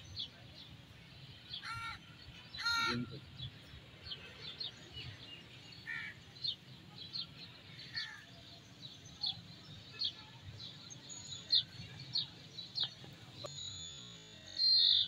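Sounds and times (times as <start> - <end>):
low background noise: 0.0 - 15.0
small birds chirping: 0.0 - 15.0.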